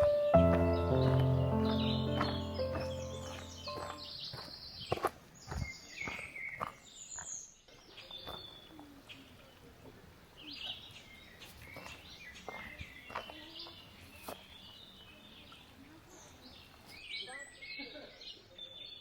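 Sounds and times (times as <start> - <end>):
footsteps on a path: 0.0 - 9.2, 10.6 - 15.0
outdoor background noise: 0.0 - 19.0
small birds chirping and singing: 0.0 - 19.0.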